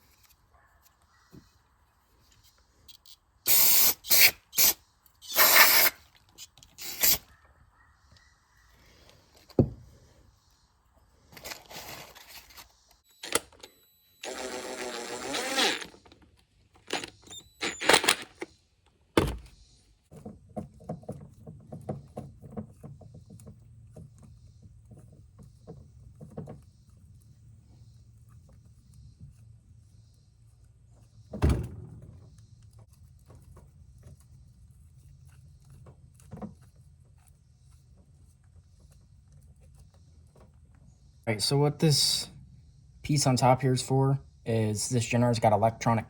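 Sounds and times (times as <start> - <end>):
compressed air hissing blasts: 3.5 - 6.0
parts clicking and knocking: 15.9 - 27.3.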